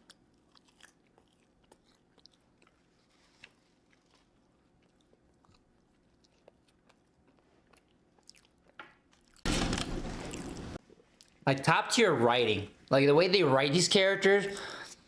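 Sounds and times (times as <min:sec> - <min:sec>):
faint chewing of food: 0:00.0 - 0:09.4, 0:10.3 - 0:11.4.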